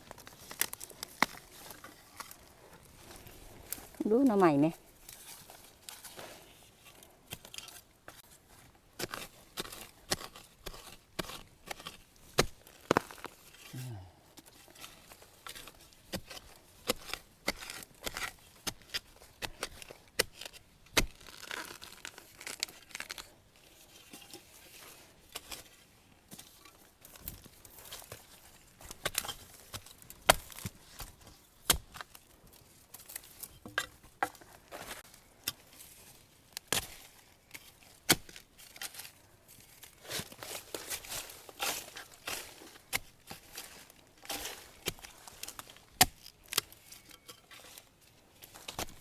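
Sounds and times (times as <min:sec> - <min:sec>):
dry bamboo leaves rustling: 0:00.0 - 0:08.3, 0:34.4 - 0:49.0.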